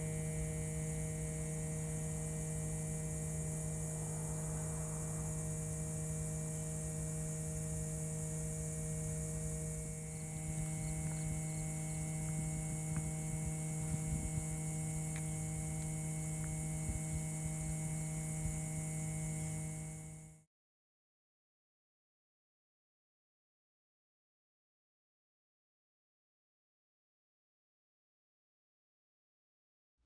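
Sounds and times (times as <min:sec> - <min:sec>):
high hiss: 0:00.0 - 0:19.6
electrical hum: 0:00.0 - 0:20.4.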